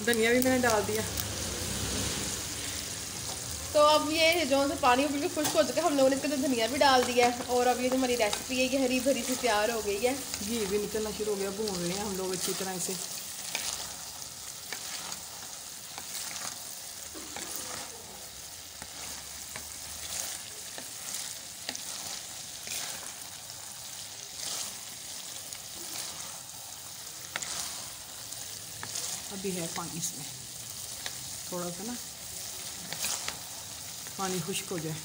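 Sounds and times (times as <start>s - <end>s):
vegetables sizzling in a pot: 0.0s - 35.0s
wooden spoon scraping a pot: 10.5s - 18.0s, 18.8s - 23.4s, 24.2s - 30.1s, 32.5s - 34.2s.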